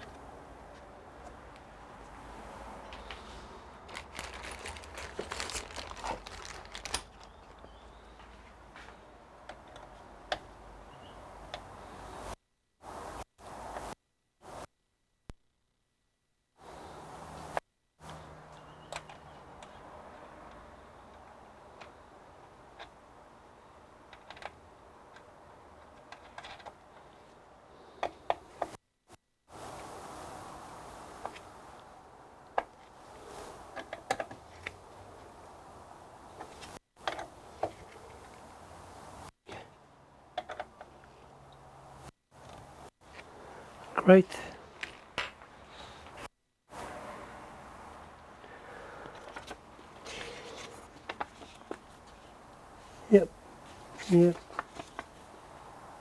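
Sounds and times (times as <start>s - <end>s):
hardware crinkling and rustling: 2.8s - 10.1s, 24.0s - 27.4s, 42.4s - 46.3s, 49.0s - 53.0s, 53.6s - 55.4s.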